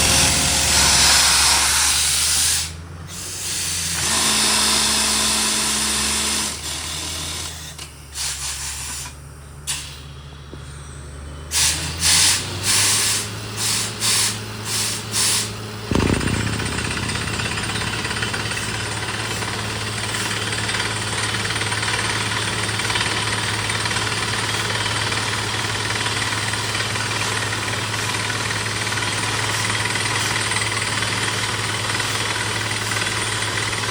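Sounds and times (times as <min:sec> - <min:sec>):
sharp air blasts: 0:11.5 - 0:20.8
drilling rig hammering: 0:15.9 - 0:22.2
engine drone: 0:15.9 - 0:25.4.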